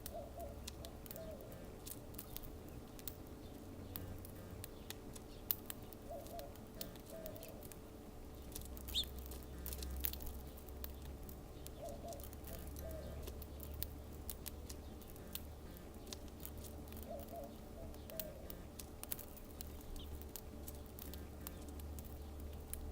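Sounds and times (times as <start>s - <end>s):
dove cooing: 0.0s - 1.8s, 3.9s - 4.7s, 6.0s - 7.7s, 11.7s - 13.5s, 15.1s - 16.1s, 16.9s - 18.8s, 21.0s - 21.7s
sharp clicks: 8.5s - 17.1s.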